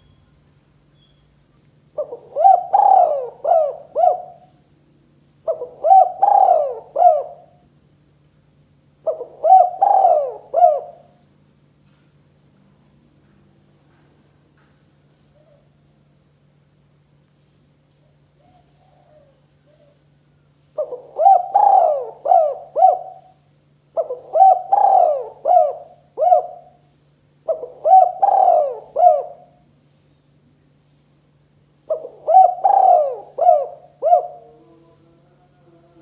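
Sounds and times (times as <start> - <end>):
dove cooing: 2.0 - 4.6, 5.4 - 7.6, 9.0 - 11.2, 18.4 - 20.0, 20.8 - 26.8, 27.4 - 29.6, 31.9 - 35.3.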